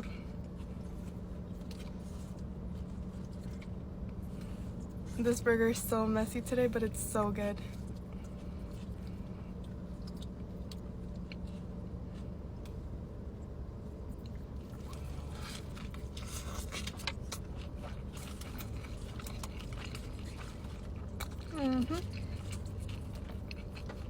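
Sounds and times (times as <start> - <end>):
steady low hum: 0.0 - 24.0
person chewing and biting: 7.8 - 12.8, 14.0 - 24.0.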